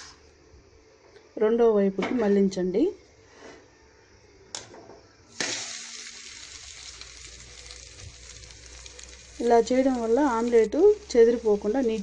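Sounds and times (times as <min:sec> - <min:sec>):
omelette sizzling in hot oil: 0:05.3 - 0:12.0.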